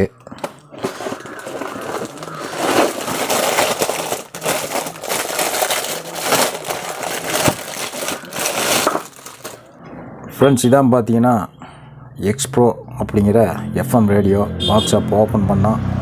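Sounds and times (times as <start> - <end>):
packaging crinkling and rustling: 0.3 - 9.7.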